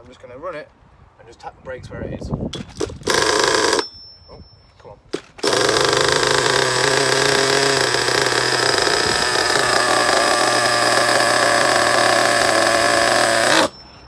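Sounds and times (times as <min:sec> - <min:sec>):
nitro engine idling: 0:05.4 - 0:13.9.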